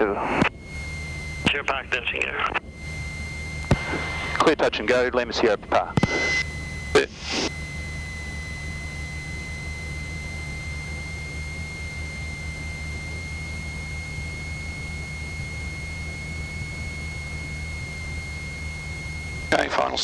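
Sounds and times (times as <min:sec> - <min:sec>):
aircraft engine drone: 0:00.0 - 0:20.0
high-pitched whine: 0:00.0 - 0:20.0.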